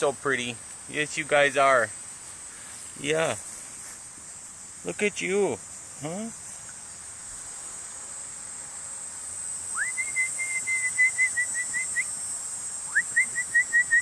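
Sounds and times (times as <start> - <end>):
crickets buzzing: 0.0 - 14.0
whistled bird calls: 9.7 - 12.1, 12.9 - 14.0.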